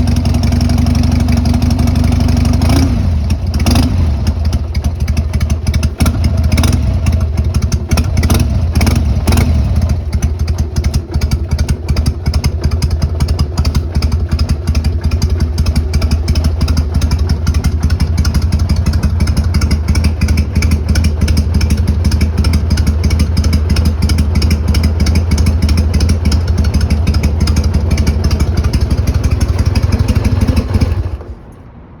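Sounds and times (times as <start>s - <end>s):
motorcycle engine idling: 0.0s - 31.6s
engine revving bursts: 2.6s - 4.8s.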